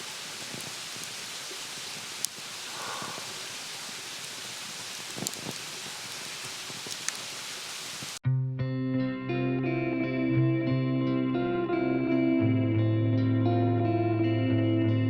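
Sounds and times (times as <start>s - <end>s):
campfire crackling and popping: 0.0s - 8.2s.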